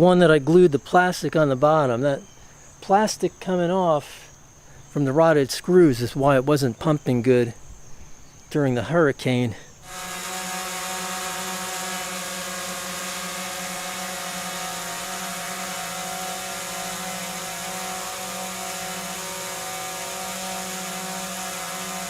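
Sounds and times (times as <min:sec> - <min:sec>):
sump pump motor hum: 0:09.8 - 0:22.0
water hissing: 0:09.8 - 0:22.0.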